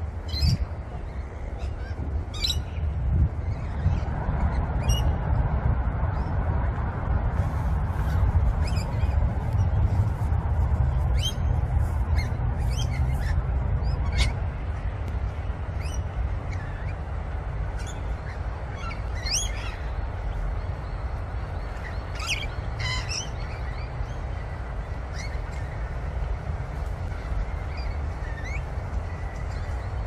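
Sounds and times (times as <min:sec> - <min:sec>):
steady low rumble: 0:00.0 - 0:30.0
wild birds chirping: 0:00.2 - 0:05.1, 0:15.4 - 0:26.4, 0:27.0 - 0:30.0.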